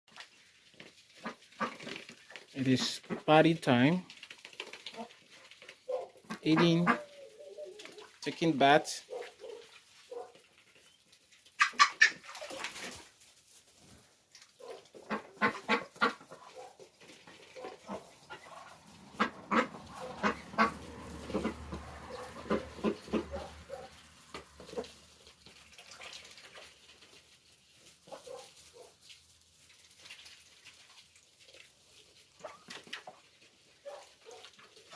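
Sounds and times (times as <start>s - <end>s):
poultry calling: 5.9s - 8.2s, 14.6s - 24.9s.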